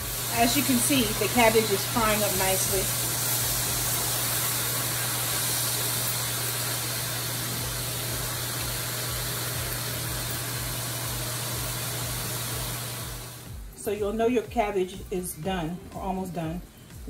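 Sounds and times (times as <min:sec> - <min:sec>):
cabbage sizzling in oil: 0:00.0 - 0:13.5.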